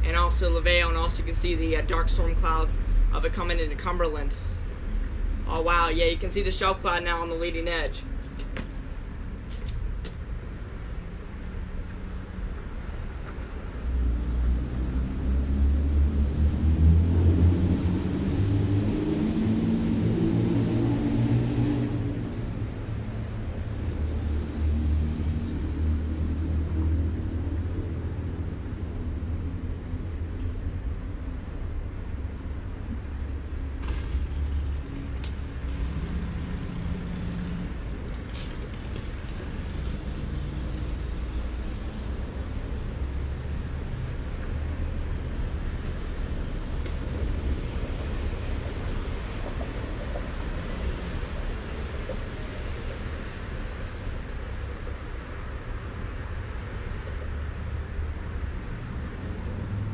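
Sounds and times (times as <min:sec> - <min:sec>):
steady low traffic rumble: 0:00.0 - 0:59.9
vehicle engine passing: 0:13.8 - 0:29.8, 0:32.1 - 0:54.8.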